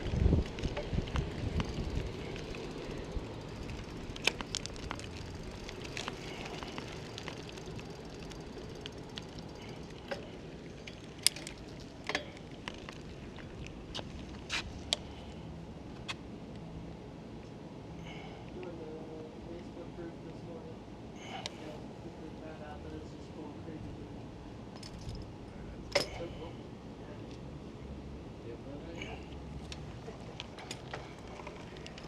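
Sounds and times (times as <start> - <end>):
wind noise: 0.0 - 8.0
bicycle rolling: 0.0 - 17.1, 29.4 - 32.0.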